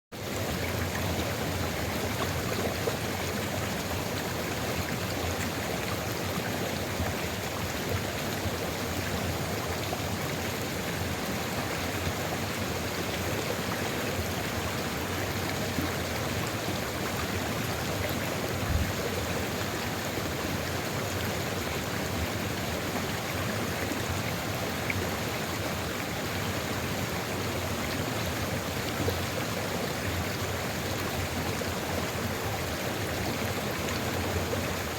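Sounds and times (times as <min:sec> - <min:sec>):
river flowing: 0:00.2 - 0:34.9
brief low thump: 0:18.6 - 0:19.0.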